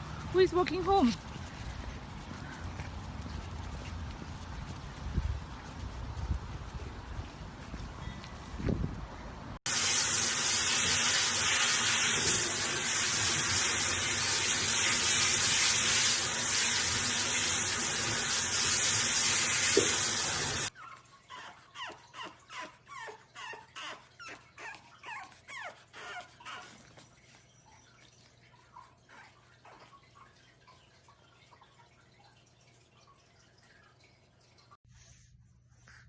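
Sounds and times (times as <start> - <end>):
puppy whimpering: 20.7 - 27.0.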